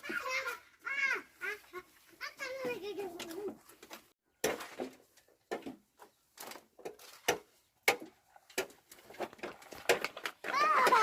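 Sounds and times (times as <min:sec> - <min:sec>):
irregular knocks and clatters: 0:02.6 - 0:11.0.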